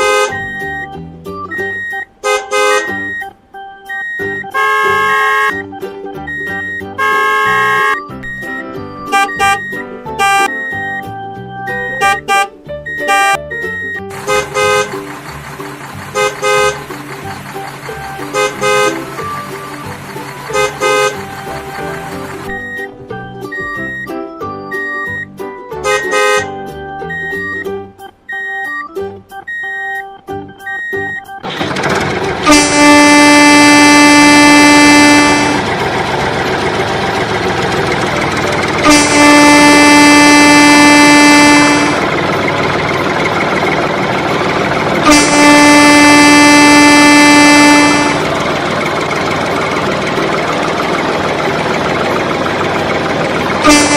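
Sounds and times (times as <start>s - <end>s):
vehicle horn honking: 0.0s - 0.9s, 1.6s - 3.3s, 4.0s - 5.6s, 6.3s - 8.4s, 9.0s - 10.8s, 11.9s - 15.1s, 16.1s - 17.0s, 18.0s - 22.7s, 25.8s - 26.6s, 32.4s - 36.0s, 38.6s - 42.3s, 45.0s - 48.6s, 53.6s - 53.9s
background music: 0.0s - 53.9s.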